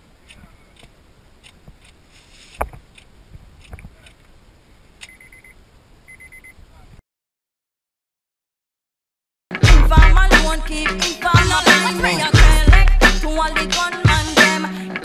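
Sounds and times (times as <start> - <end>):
dry clicks from car: 0.2 - 4.3.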